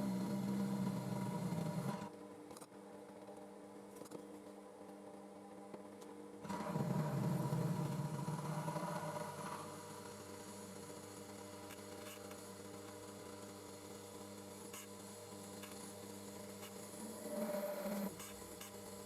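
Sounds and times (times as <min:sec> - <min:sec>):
belt grinder humming: 0:00.0 - 0:02.1, 0:06.5 - 0:11.7, 0:14.4 - 0:19.0.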